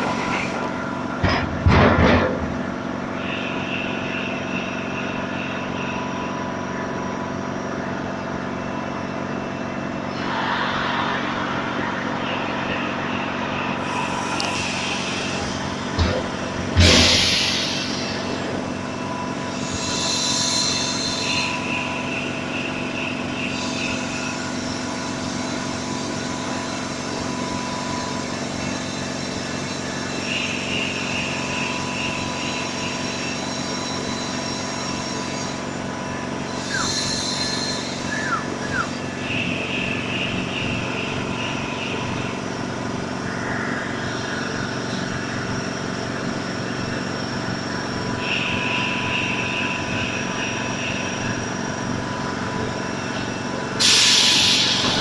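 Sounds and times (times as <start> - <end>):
air compressor humming: 0.0 - 55.0
high-pitched hiss: 16.8 - 24.5, 30.1 - 40.2, 53.8 - 55.0.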